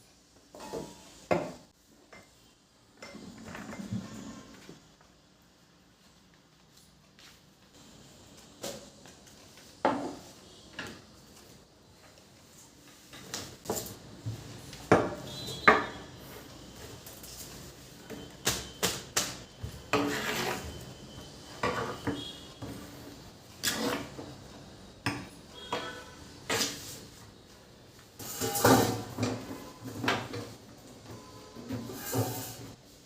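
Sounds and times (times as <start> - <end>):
dishes and utensils clinking: 28.2 - 30.6.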